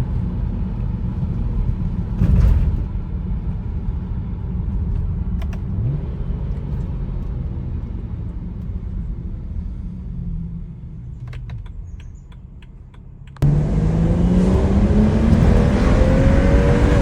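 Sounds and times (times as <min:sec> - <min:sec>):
car engine and road rumble: 0:00.0 - 0:17.0
brief rising tone: 0:13.4 - 0:17.0.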